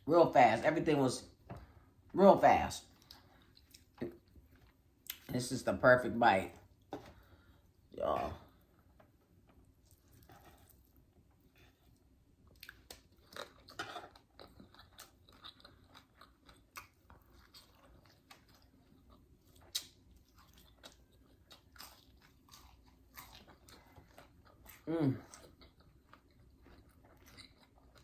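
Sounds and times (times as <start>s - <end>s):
close-up chewing: 2.8s - 5.3s, 8.4s - 28.0s.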